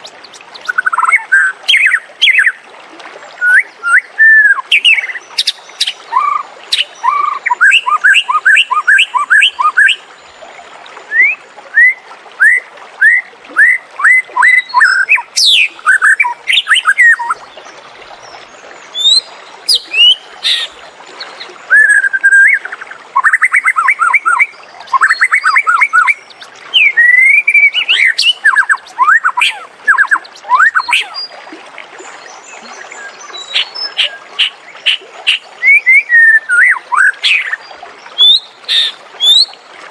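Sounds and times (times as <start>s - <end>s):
bird singing whistled notes: 3.4s - 10.0s, 11.1s - 17.4s, 21.7s - 31.3s, 33.0s - 37.6s.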